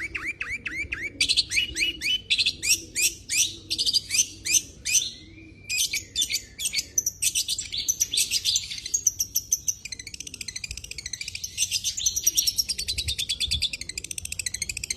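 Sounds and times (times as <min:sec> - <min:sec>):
bird singing rapid high chirps: 0:00.0 - 0:14.9.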